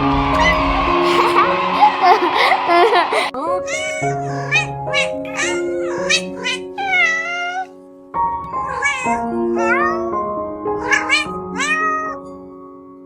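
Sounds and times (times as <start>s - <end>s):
background music: 0.0s - 13.0s
cat meowing: 3.6s - 7.7s, 8.6s - 10.2s, 10.8s - 12.3s.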